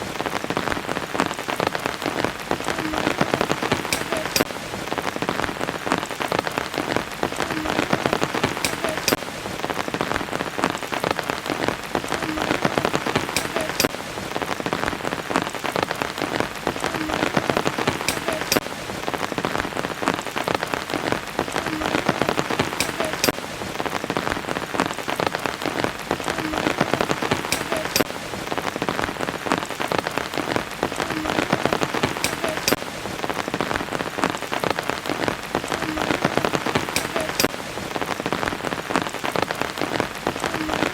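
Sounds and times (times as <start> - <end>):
rain falling: 0.0 - 40.9
sharp drips: 16.9 - 18.7, 35.9 - 37.6.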